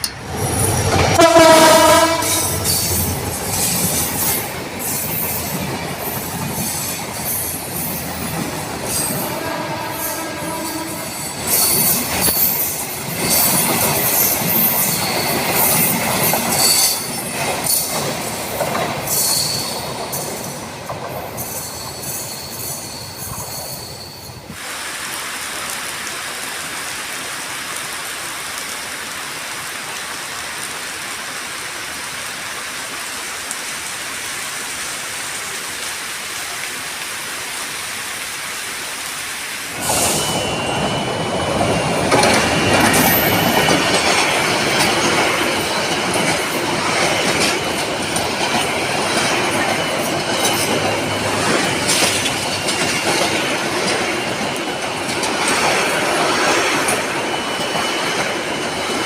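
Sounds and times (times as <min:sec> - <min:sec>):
train wheels squealing and clattering: 0:02.2 - 0:24.6, 0:39.7 - 0:59.0.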